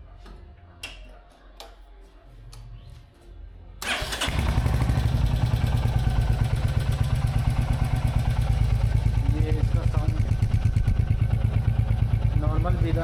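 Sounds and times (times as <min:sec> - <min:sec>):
motorcycle engine idling: 0:03.8 - 0:13.0.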